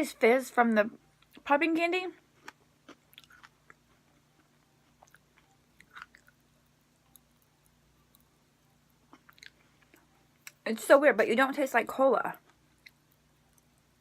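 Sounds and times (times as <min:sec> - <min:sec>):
chewing with crackles: 0:02.3 - 0:10.6, 0:12.4 - 0:14.0.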